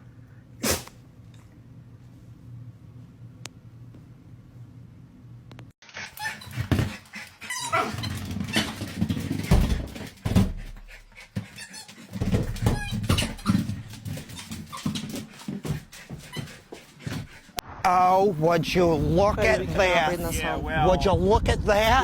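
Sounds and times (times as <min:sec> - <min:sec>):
dog vocalizing: 0:06.1 - 0:08.7.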